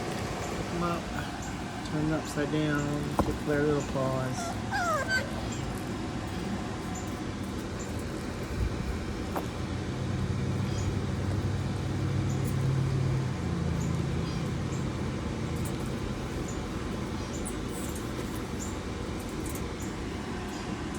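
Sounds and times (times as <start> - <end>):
fan blowing: 0.0 - 20.9
low droning hum: 0.0 - 20.9.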